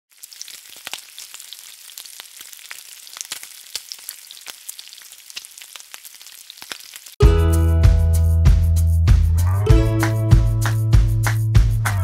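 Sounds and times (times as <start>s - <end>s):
food sizzling in hot oil: 0.1s - 7.2s
oil crackles and pops: 0.1s - 7.2s.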